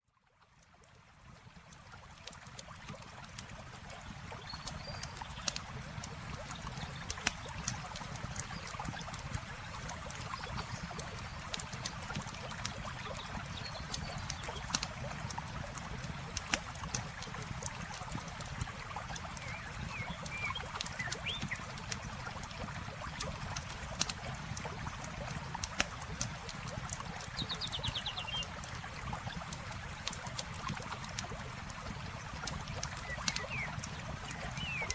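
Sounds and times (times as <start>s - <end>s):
flowing water: 0.0s - 34.9s
campfire crackling and popping: 1.5s - 34.9s.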